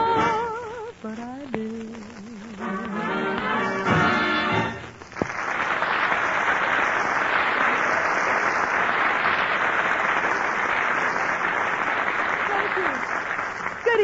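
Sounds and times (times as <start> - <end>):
audience applauding: 2.8 - 14.0.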